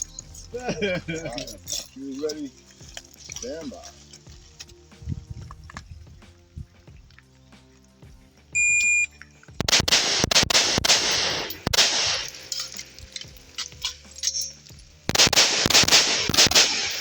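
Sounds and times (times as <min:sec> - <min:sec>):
shot timer buzzer beep: 0:08.6 - 0:09.1
rifle shots echoing: 0:09.6 - 0:14.5, 0:15.1 - 0:17.0.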